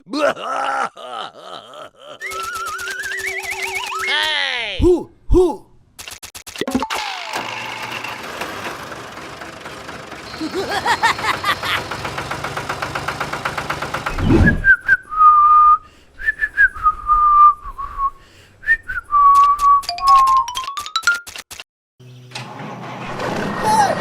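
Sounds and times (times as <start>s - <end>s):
whirr with fast ticking: 2.2s - 4.0s, 7.3s - 14.2s
person whistling a tune: 2.2s - 4.1s, 14.3s - 20.5s.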